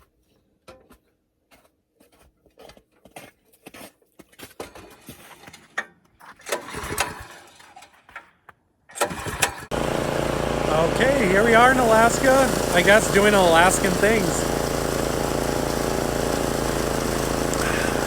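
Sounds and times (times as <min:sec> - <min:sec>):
snowblower engine starting: 0:09.0 - 0:18.0.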